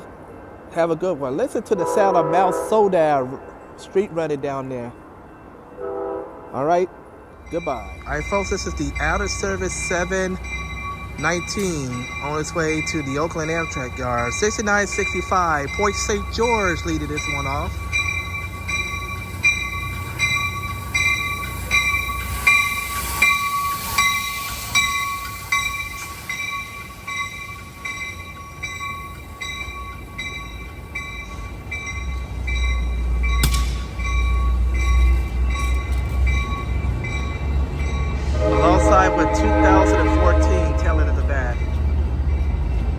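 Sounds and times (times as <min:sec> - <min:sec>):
passenger train moving: 0:00.0 - 0:42.9
train bell ringing: 0:00.0 - 0:42.9
diesel locomotive rumble: 0:06.5 - 0:42.9.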